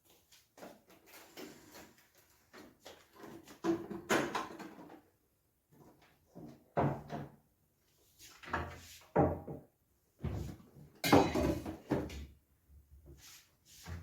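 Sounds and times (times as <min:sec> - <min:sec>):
kitchen things knocking and clattering: 0:03.5 - 0:05.1, 0:06.4 - 0:07.4, 0:08.6 - 0:12.3.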